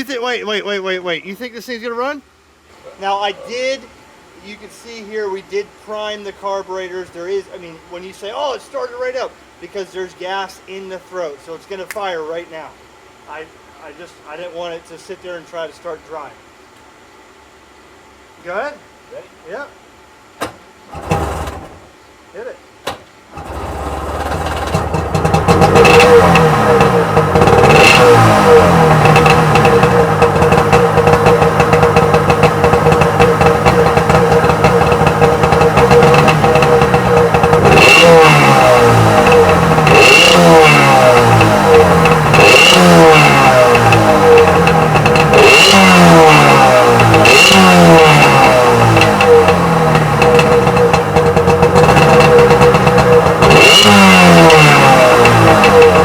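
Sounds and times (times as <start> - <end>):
two-stroke engine idling and revving: 20.9 - 21.8, 23.4 - 56.0.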